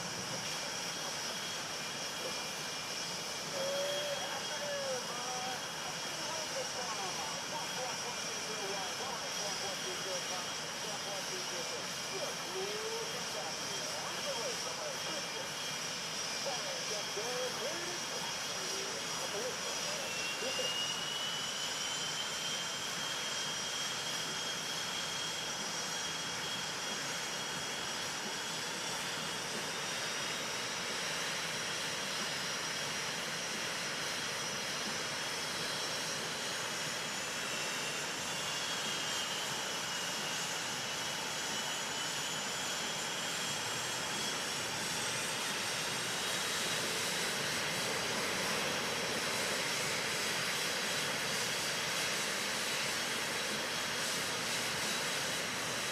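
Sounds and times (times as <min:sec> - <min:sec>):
high turbine whines: 0:00.0 - 0:55.9
jet engines running: 0:00.0 - 0:55.9.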